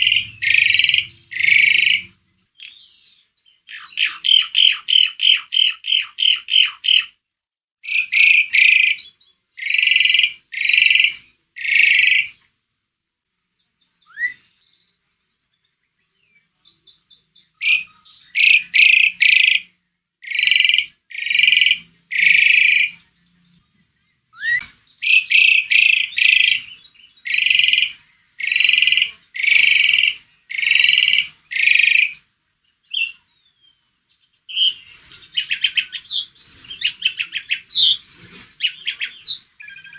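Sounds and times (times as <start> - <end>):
starling harsh rasping calls: 0.0 - 7.2, 7.8 - 12.4, 17.6 - 23.0, 24.4 - 32.2, 34.5 - 39.9.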